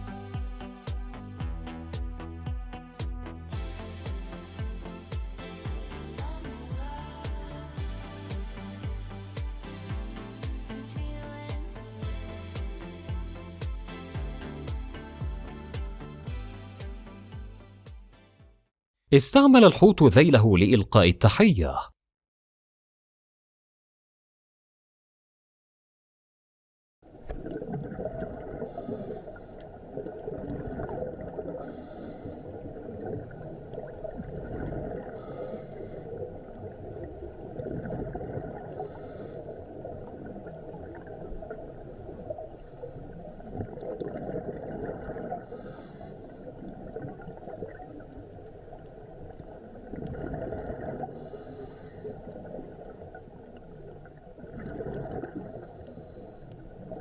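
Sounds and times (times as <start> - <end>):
exhaled bubbles gurgling underwater: 27.1 - 35.2, 35.8 - 57.0
diver breathing through regulator: 35.2 - 36.2, 38.8 - 39.7, 51.2 - 52.2.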